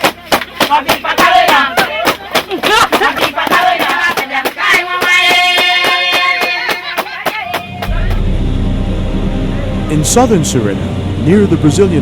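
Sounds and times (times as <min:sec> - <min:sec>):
fast drum or hand-clap beat: 0:00.0 - 0:08.3
group singing: 0:00.0 - 0:08.4
steady held musical notes: 0:07.7 - 0:12.0.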